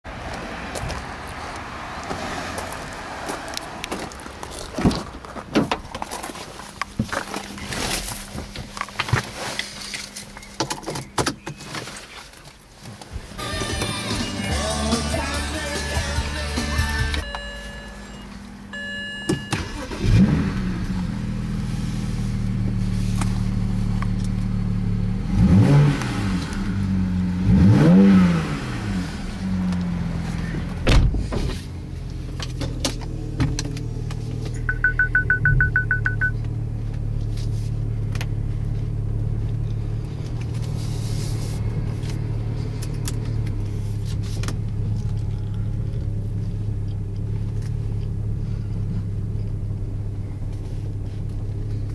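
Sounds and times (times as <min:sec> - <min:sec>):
car engine revving and idling: 0:14.0 - 0:30.8, 0:31.5 - 0:51.9
high electronic beeps: 0:17.2 - 0:19.8, 0:34.6 - 0:36.4.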